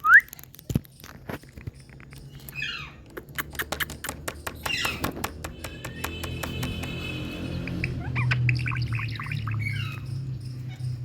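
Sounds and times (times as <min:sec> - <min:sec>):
small clicks and taps: 0:00.3 - 0:07.0
parrot raspy calls: 0:07.4 - 0:10.1.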